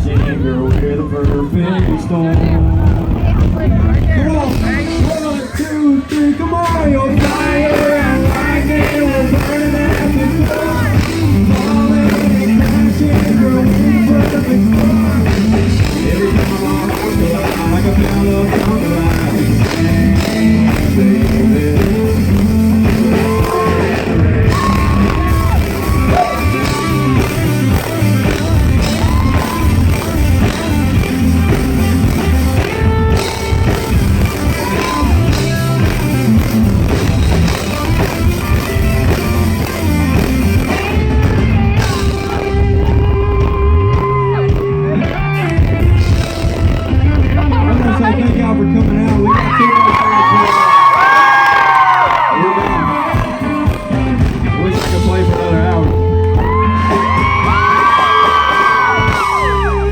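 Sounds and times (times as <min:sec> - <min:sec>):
live country-rock band playing: 0:00.0 - 0:59.9
singing or crowd shouts: 0:22.8 - 0:30.2, 0:33.2 - 0:35.6, 0:42.3 - 0:45.4, 0:49.0 - 0:59.9.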